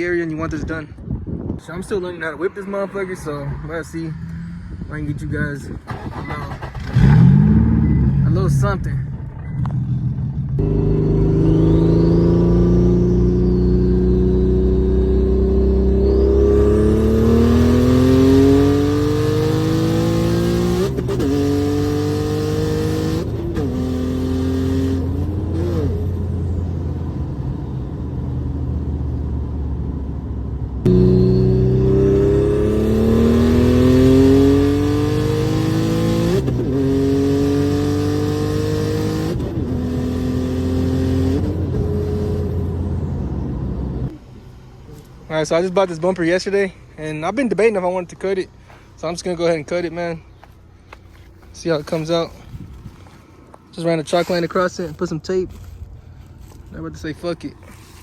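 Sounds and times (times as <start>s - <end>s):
car engine accelerating through gears: 5.7s - 44.2s.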